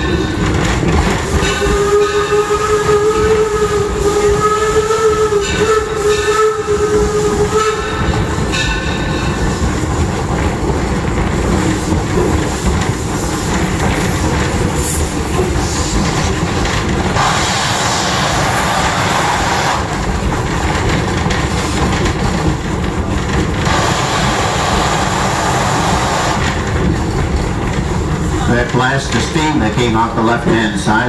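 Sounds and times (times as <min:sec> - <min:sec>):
train wheels clattering on track: 0:00.0 - 0:31.0
loud rushing noise: 0:15.8 - 0:20.8.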